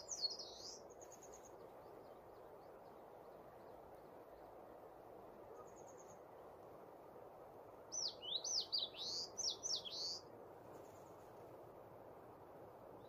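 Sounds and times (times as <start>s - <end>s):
songbird whistling phrase: 8.0s - 10.2s.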